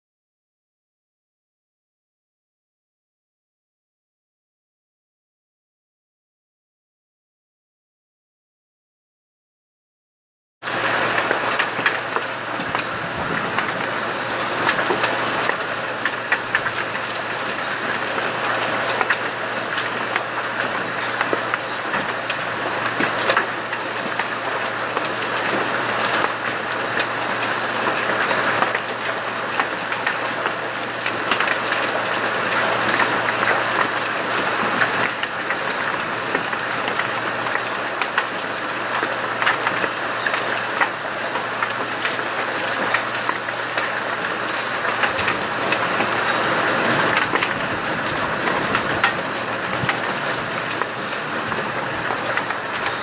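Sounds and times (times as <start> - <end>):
heavy rain hissing on vehicle: 10.6 - 53.0
raindrops ticking on metal and glass: 10.7 - 53.0.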